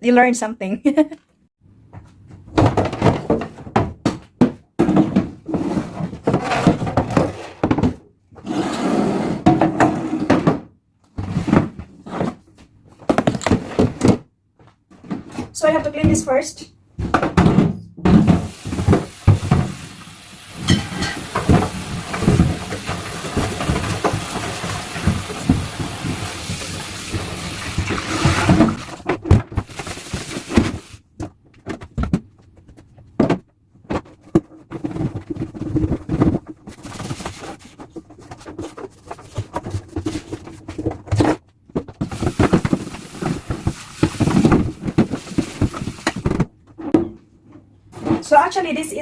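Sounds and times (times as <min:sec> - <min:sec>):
knocks and clatter from handling: 0:01.9 - 0:08.0, 0:09.5 - 0:15.6
kitchen tap running: 0:18.5 - 0:28.9.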